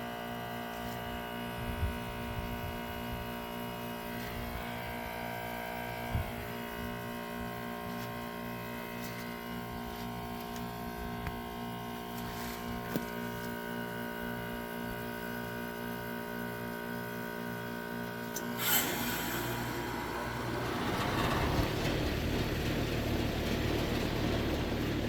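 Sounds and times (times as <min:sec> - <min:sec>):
heat pump compressor humming: 0:00.0 - 0:25.0
outdoor fan rushing: 0:00.0 - 0:25.0
reversing valve whoosh: 0:18.6 - 0:24.7.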